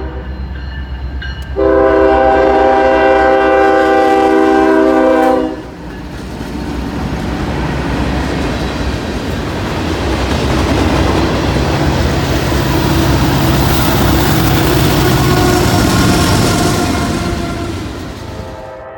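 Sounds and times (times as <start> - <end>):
train horn: 0.0 - 0.4, 1.5 - 5.8, 12.9 - 18.9
locomotive engine rumble: 0.0 - 18.7
rail car wheel noise: 0.0 - 18.9.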